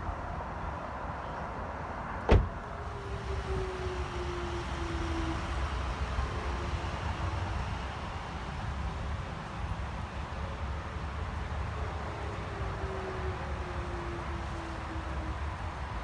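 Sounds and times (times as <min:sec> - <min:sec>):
sharp thump: 0:02.3 - 0:02.5.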